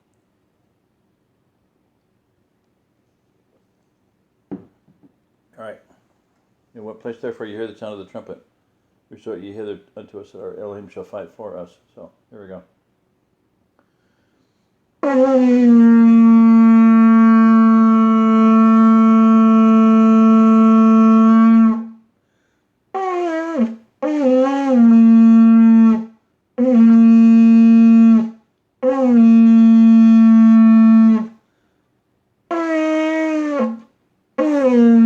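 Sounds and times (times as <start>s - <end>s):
shofar blasts: 15.0s - 22.1s, 23.0s - 31.4s, 32.5s - 35.0s.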